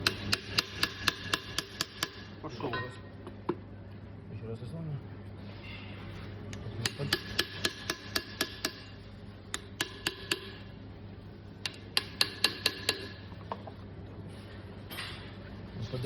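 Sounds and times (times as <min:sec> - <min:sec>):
hammer tapping on metal: 0:00.0 - 0:02.9, 0:06.8 - 0:10.6, 0:11.6 - 0:13.7.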